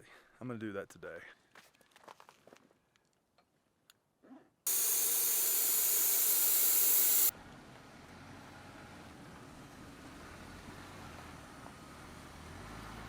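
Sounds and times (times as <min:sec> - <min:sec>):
air hissing from tire valve: 0:04.7 - 0:07.3.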